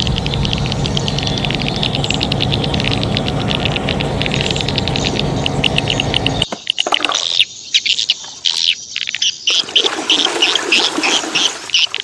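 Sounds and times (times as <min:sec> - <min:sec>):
low rushing noise with hum: 0:00.0 - 0:06.5
small birds chirping: 0:00.0 - 0:12.0.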